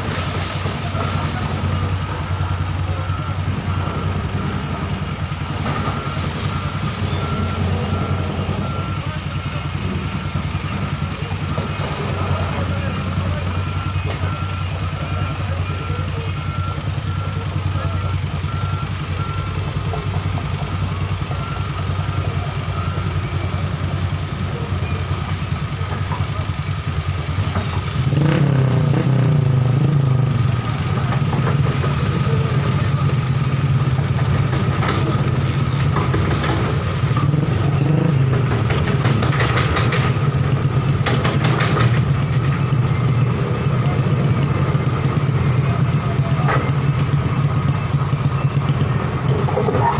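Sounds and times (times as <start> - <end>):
diesel engine running: 0.0 - 49.9
reversing alarm beeping: 0.4 - 27.1.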